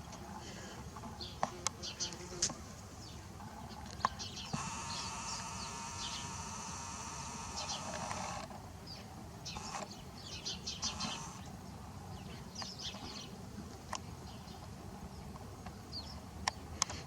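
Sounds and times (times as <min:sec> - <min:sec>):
drawn-out animal call: 0:04.5 - 0:08.5, 0:10.8 - 0:11.5.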